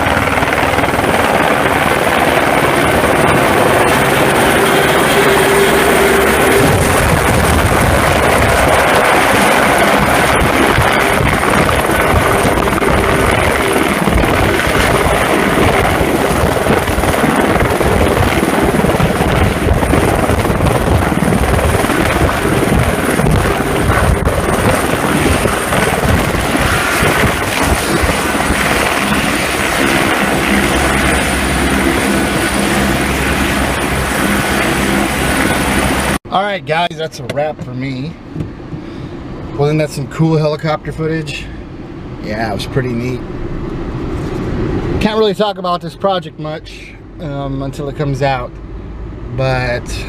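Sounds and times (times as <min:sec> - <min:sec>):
helicopter rotor and engine: 0:00.0 - 0:36.2.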